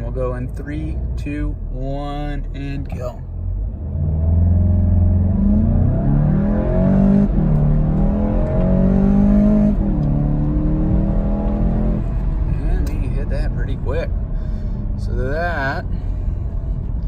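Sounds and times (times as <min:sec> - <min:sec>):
car engine accelerating hard: 0:03.5 - 0:17.0.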